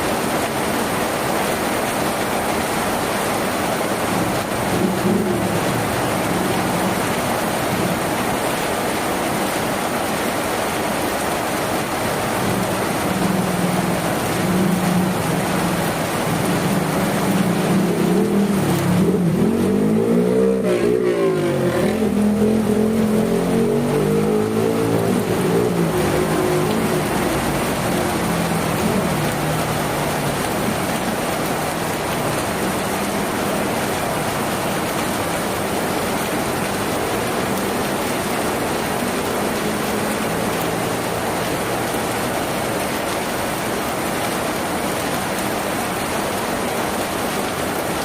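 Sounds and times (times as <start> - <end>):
rain on a tin roof: 0.0 - 48.0
engine hum: 12.3 - 43.6.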